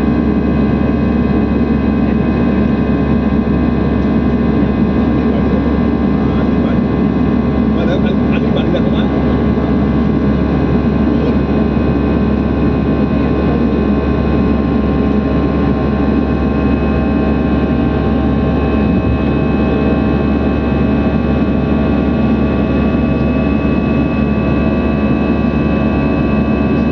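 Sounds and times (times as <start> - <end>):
jet engines running: 0.0 - 26.9.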